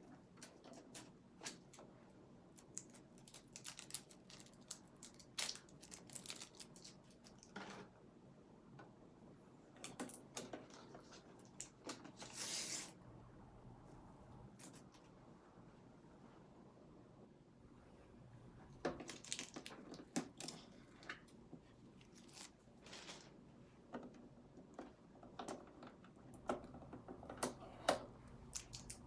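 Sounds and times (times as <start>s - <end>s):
long rustle or tear: 10.8s - 13.0s, 22.0s - 23.4s.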